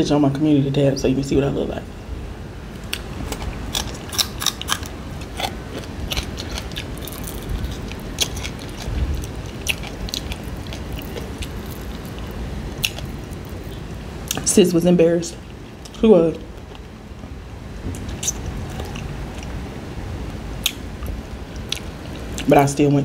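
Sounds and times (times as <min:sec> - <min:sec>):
chewing and crunching fish: 0:02.9 - 0:13.9
mouth clicks and smacks: 0:18.0 - 0:19.5.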